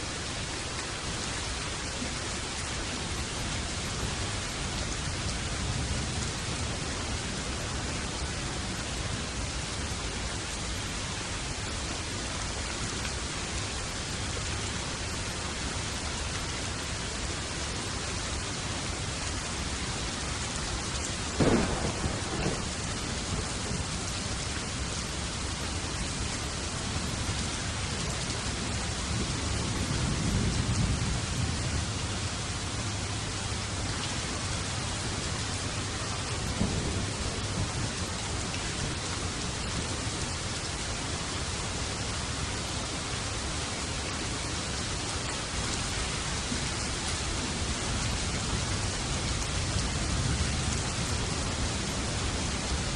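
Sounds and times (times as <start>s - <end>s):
heavy rain falling: 0.0s - 52.9s
thunder rumbling: 21.3s - 25.5s
thunder crack: 21.4s - 22.9s.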